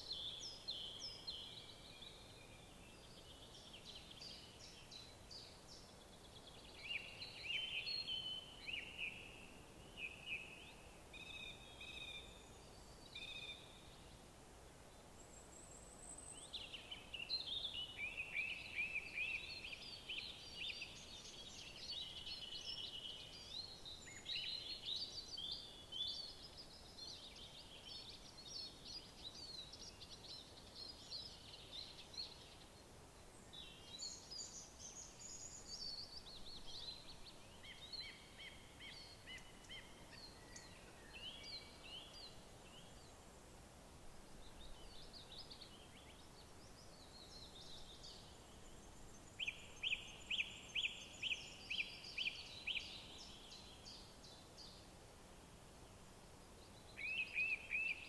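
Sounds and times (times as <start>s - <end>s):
songbirds singing: 0.0s - 14.2s, 14.8s - 43.5s, 44.3s - 55.0s, 55.7s - 58.0s.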